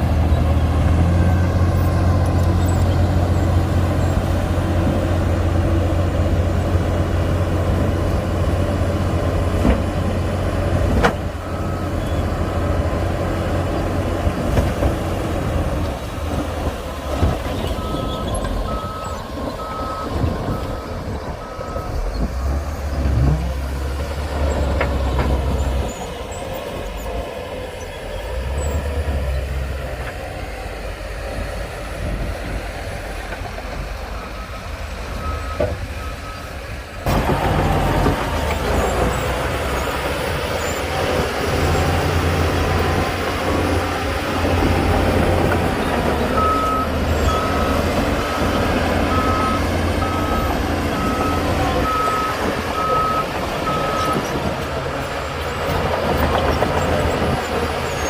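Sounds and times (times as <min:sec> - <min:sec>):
diesel machinery engine rumble: 0:00.0 - 0:58.0
reversing alarm beeping: 0:17.8 - 0:22.7, 0:46.3 - 0:54.2.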